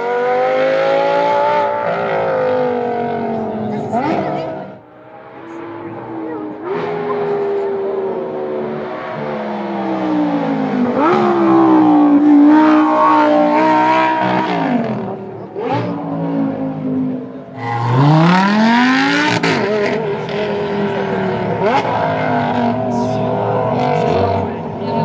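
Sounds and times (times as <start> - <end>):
sports car engine revving: 0.0 - 25.0.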